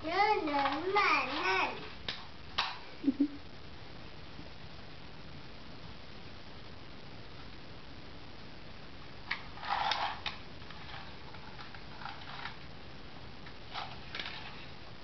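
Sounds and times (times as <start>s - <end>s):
steady hiss: 0.0s - 15.0s
toy car rattle: 0.4s - 2.7s, 9.3s - 12.6s, 13.7s - 14.7s
toy car clicks: 9.3s - 11.0s.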